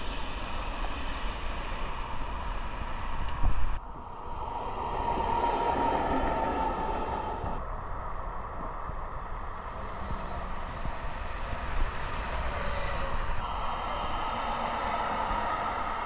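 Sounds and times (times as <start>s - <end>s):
high steady whine: 0.0s - 16.0s
train rumbling past: 3.7s - 7.6s.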